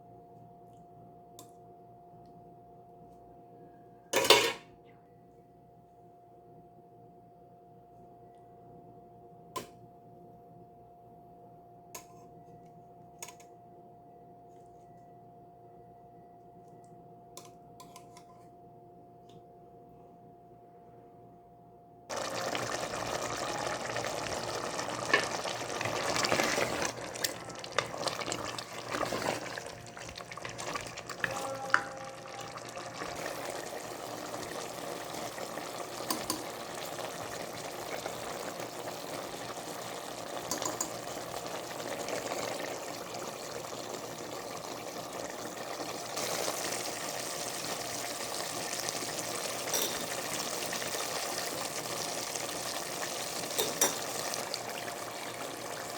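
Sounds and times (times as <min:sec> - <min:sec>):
food sizzling in a pan: 0:22.1 - 0:55.9.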